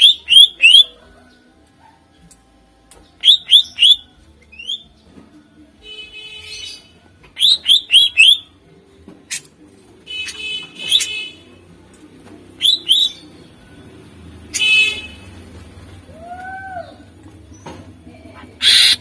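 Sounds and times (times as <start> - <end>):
bird buzzy chatter: 18.6 - 19.0.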